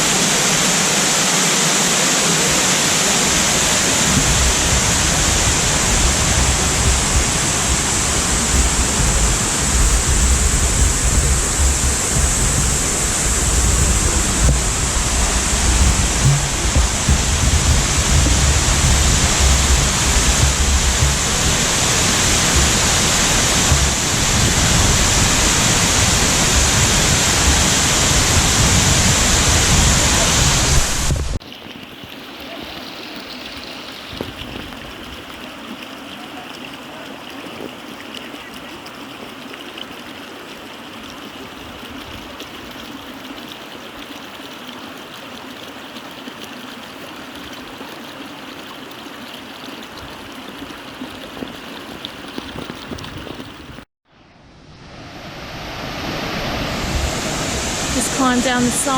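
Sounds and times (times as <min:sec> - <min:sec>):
waterfall rushing: 0:00.0 - 0:31.4, 0:54.6 - 0:58.9
running water: 0:00.0 - 0:53.9, 0:54.7 - 0:58.9.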